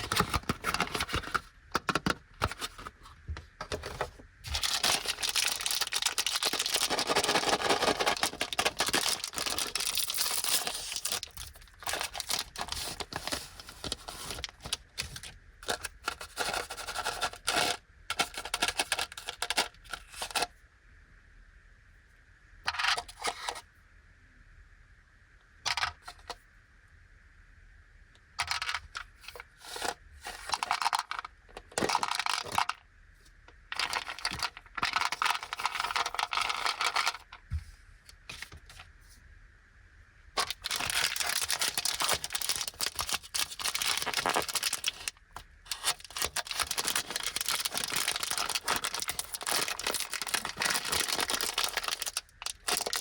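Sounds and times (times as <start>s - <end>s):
plastic wrappers crinkling: 0.0s - 3.0s, 3.8s - 20.4s, 30.4s - 32.8s, 33.7s - 37.3s, 40.4s - 53.0s.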